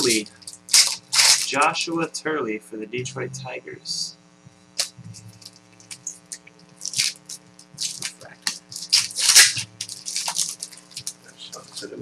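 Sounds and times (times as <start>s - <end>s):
cards and wrappers rustling: 0.0s - 2.0s, 6.8s - 12.0s
steady electrical hum: 0.0s - 12.0s.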